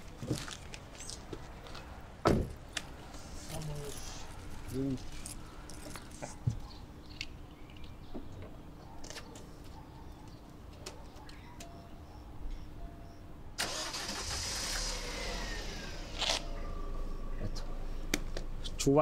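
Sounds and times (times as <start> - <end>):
light clicks and jangles: 3.4 - 8.0
car engine starting and running: 13.6 - 18.8.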